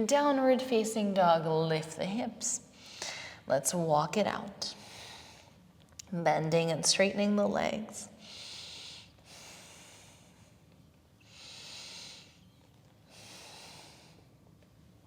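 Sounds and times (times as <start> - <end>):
woman breathing softly: 2.8 - 3.5, 4.7 - 5.6, 8.1 - 14.5.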